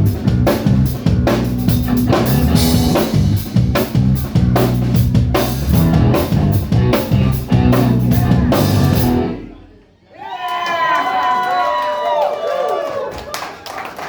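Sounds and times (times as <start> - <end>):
electric guitar: 0.0 - 9.6
bass guitar: 0.0 - 9.8
drum kit beat: 0.0 - 9.8.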